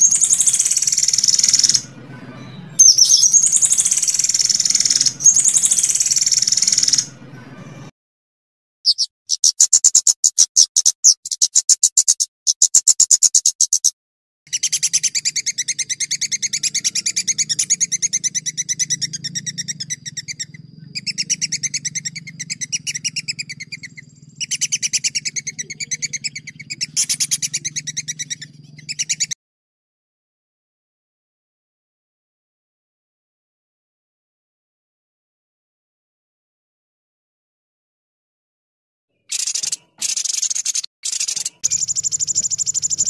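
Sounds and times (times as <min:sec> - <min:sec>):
songbird trilling: 0:00.0 - 0:07.2, 0:08.9 - 0:13.9, 0:14.5 - 0:29.4, 0:39.3 - 0:43.0.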